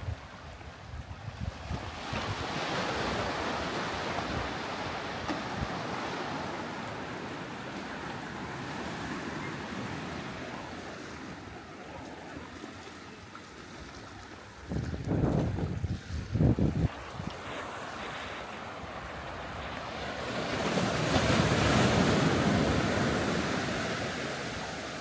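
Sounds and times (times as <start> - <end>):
waves breaking on sandy beach: 0.0 - 25.0
wind buffeting microphone: 14.6 - 17.4
wave wash hissing up shore: 16.8 - 25.0.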